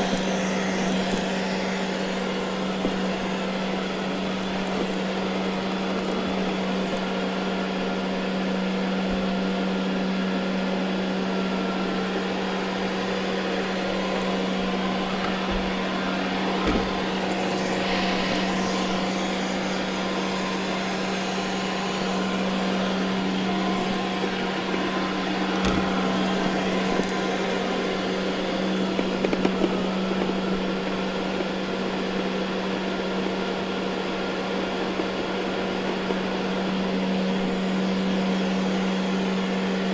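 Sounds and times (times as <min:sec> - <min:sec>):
robot vacuum running on carpet: 0:00.0 - 0:39.9.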